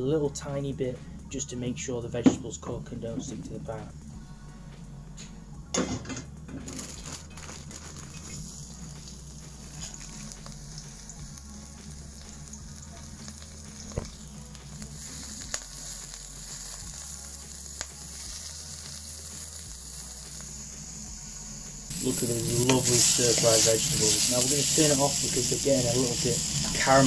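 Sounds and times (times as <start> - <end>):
vegetables sizzling in a wok: 6.6 - 27.0.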